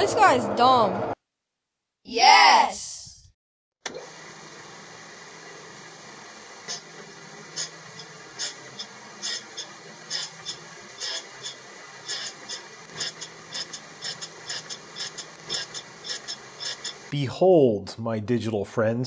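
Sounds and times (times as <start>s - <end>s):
grinding machine running: 3.9s - 17.1s
grinder wheel passing over steel: 5.5s - 17.1s.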